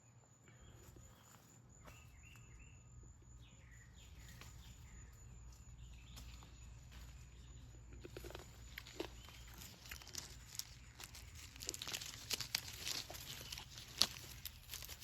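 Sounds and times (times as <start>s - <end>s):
rustling crackles: 6.1s - 15.0s.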